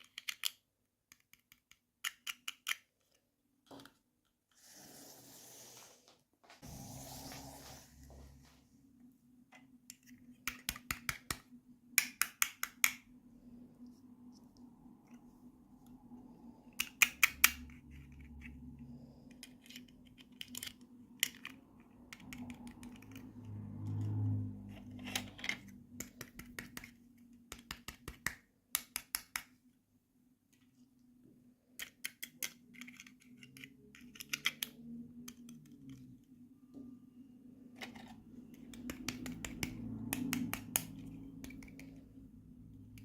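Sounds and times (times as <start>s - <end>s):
low rubbing sound: 4.6s - 8.8s.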